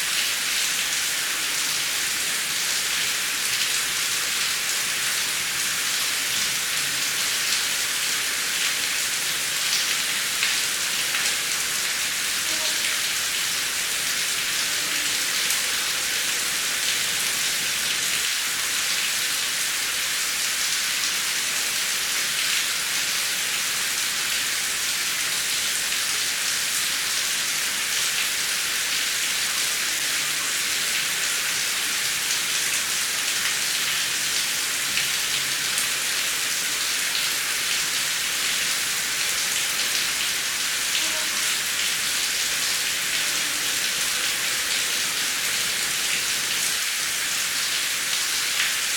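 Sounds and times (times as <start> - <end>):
heavy rain: 0.0 - 48.9.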